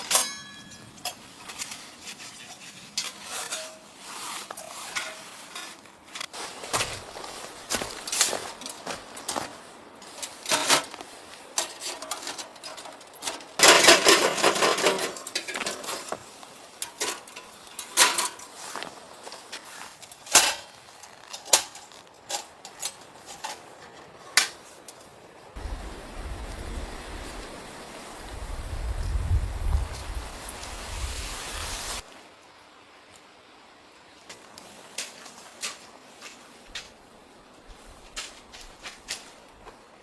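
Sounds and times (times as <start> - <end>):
small hard objects clattering: 0.0 - 24.7.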